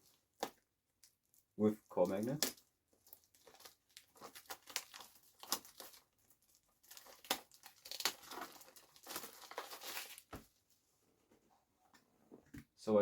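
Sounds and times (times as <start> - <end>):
plastic packaging crinkling and tearing: 0.0 - 10.3.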